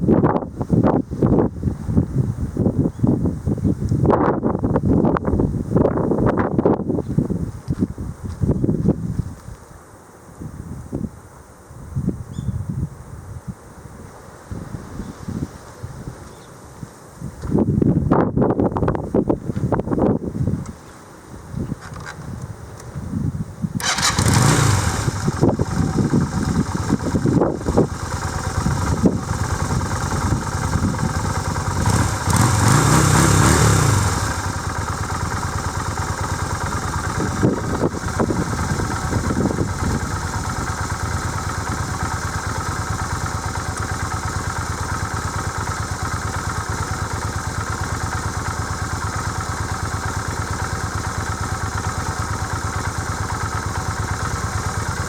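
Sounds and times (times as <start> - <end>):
motorcycle engine revving and idling: 23.8 - 55.0.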